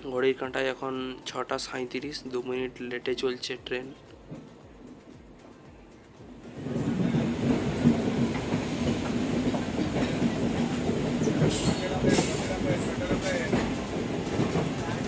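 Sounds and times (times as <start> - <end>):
train wheels clattering on track: 4.0 - 15.0.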